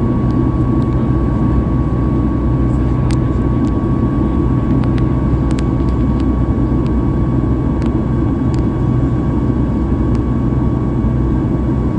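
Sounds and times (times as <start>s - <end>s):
jet engine roar and airflow: 0.0s - 11.9s
thin steady whine: 0.0s - 11.9s.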